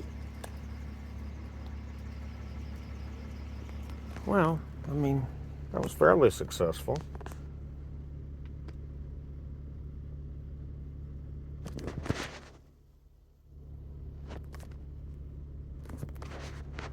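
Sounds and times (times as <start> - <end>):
low mechanical hum: 0.0 - 16.9
rustle: 11.6 - 12.8.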